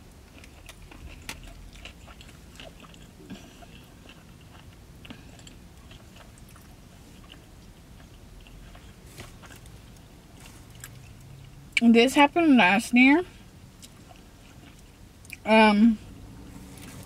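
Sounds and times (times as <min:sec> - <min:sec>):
person chewing food: 0:00.0 - 0:11.6, 0:13.4 - 0:15.4.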